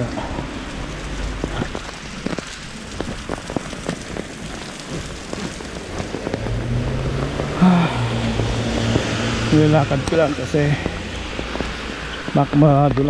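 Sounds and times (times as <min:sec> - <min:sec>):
heavy rain falling: 0:00.0 - 0:13.0
raindrops ticking on camera: 0:00.0 - 0:13.0.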